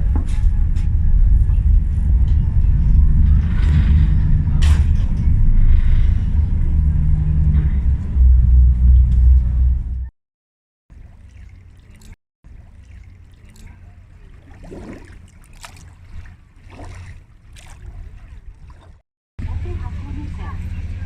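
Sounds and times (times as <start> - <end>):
boat engine rumble: 0.0 - 10.1, 10.9 - 21.0
wind on microphone: 0.0 - 10.1.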